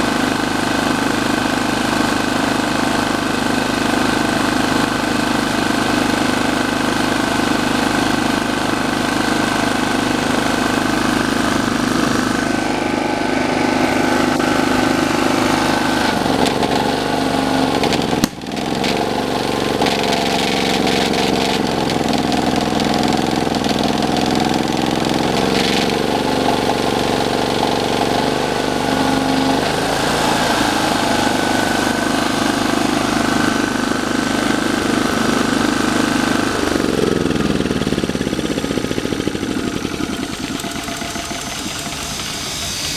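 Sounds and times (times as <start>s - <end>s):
van engine idling: 4.9s - 42.9s
thin high whine: 40.1s - 42.9s.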